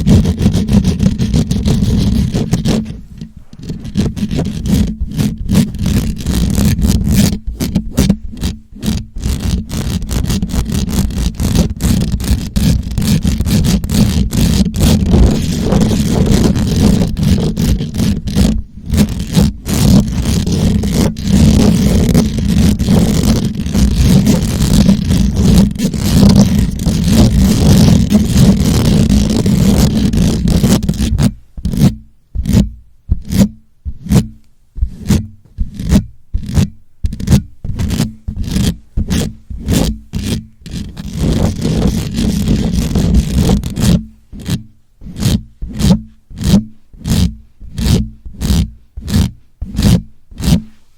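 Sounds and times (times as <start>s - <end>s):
microphone being scratched: 0.0s - 50.9s.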